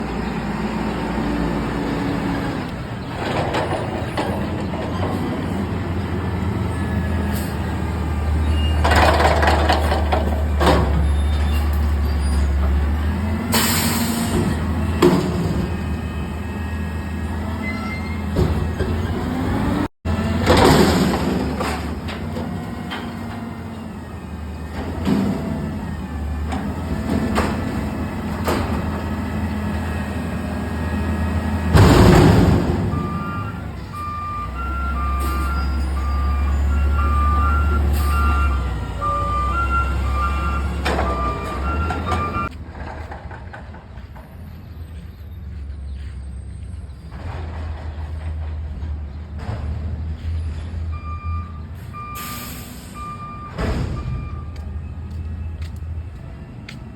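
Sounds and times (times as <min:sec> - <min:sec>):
diesel engine rumbling: 0:00.0 - 0:56.9
backup alarm beeping: 0:32.8 - 0:42.6, 0:50.9 - 0:55.6.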